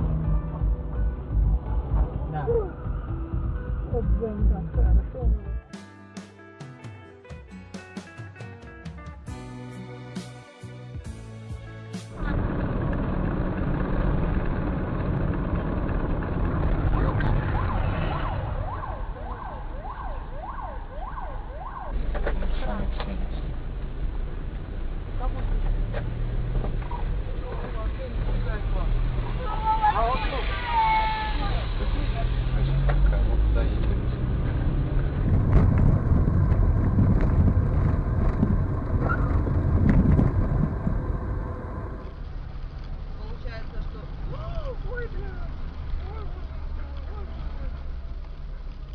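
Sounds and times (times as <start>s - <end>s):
car engine rumble: 0.0s - 5.7s, 11.0s - 48.9s
guitar music: 0.0s - 12.3s
road noise: 0.0s - 48.9s
emergency vehicle siren: 16.8s - 22.1s
wind on microphone: 34.6s - 42.2s.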